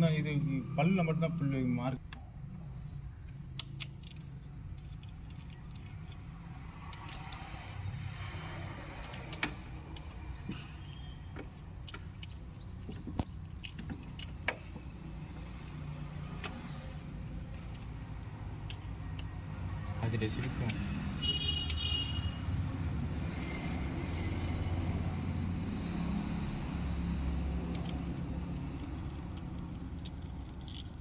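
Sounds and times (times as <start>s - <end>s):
background traffic rumble: 0.0s - 31.0s
metallic clicks of tools: 3.3s - 8.2s, 8.8s - 15.1s, 26.9s - 31.0s.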